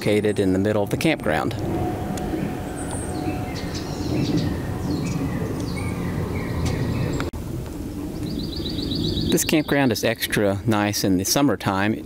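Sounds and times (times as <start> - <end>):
low outdoor rumble: 0.0 - 11.3
small birds chirping: 2.2 - 7.4, 8.2 - 10.1.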